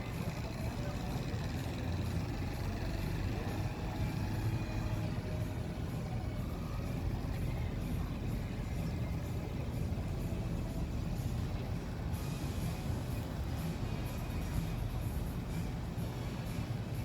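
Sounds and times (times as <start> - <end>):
faint rising and falling pitch: 0.0 - 12.8
low rumble of vehicles: 0.0 - 17.0.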